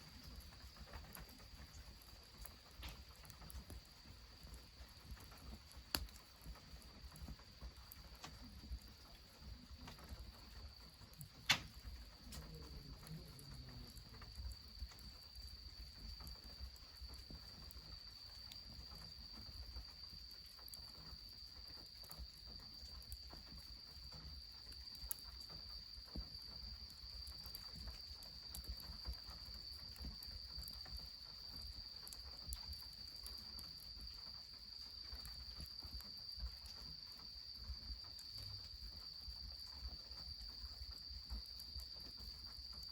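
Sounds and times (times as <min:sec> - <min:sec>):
insects trilling: 0:00.0 - 0:42.9
wood fire crackling: 0:00.0 - 0:42.9
sharp crack: 0:11.4 - 0:11.8.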